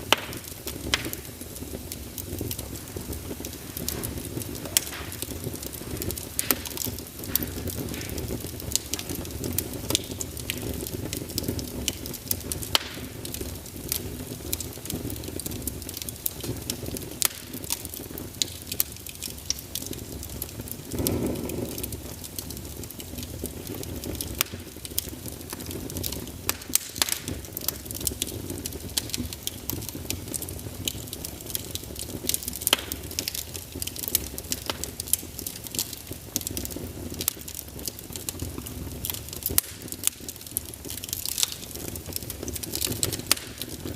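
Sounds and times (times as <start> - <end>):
fire crackling and popping: 0.0 - 43.9
low roar of fire: 0.0 - 43.9.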